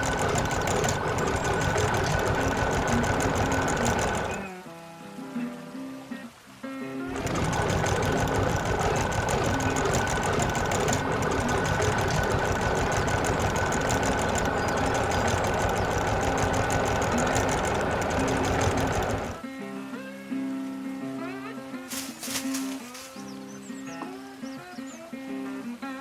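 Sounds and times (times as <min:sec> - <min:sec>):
machine mechanical clatter: 0:00.0 - 0:04.5, 0:07.1 - 0:19.4, 0:21.9 - 0:23.2.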